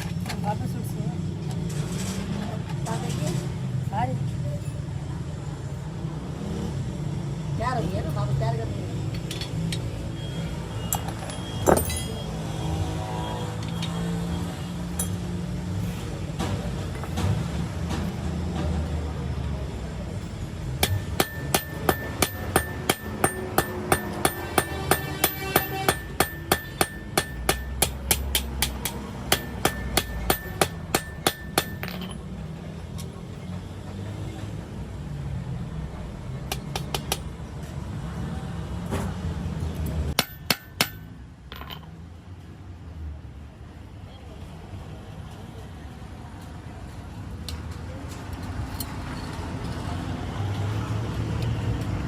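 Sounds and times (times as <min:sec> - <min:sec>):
low workshop hum: 0:13.6 - 0:35.0
hammer striking metal: 0:20.8 - 0:32.2, 0:40.2 - 0:41.7.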